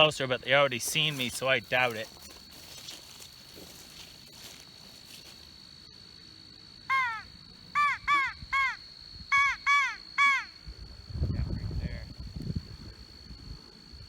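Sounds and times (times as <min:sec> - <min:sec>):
crow call caws: 0:06.9 - 0:10.5.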